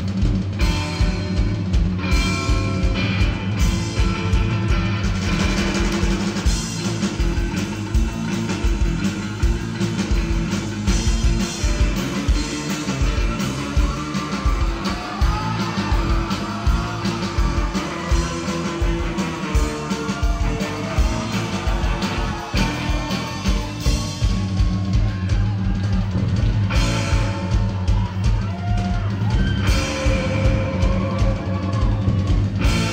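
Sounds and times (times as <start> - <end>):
electric guitar: 0.0 - 32.9
steady drum beat: 0.0 - 32.9.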